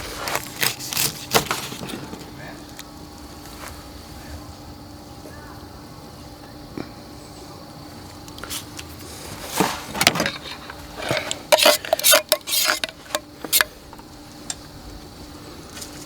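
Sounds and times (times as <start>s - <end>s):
metal utensils clinking on cookware: 10.1s - 13.7s.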